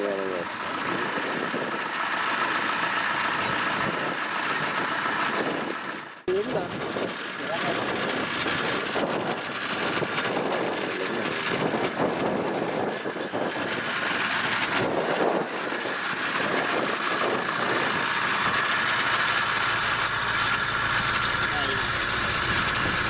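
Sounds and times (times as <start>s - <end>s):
heavy machine engine running: 0.0s - 23.0s
high steady whine: 14.4s - 23.0s.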